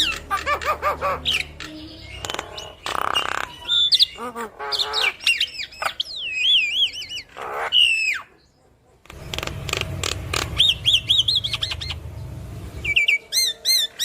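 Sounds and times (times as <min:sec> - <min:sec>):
bird singing varied whistles: 0:10.6 - 0:12.0, 0:12.8 - 0:14.0.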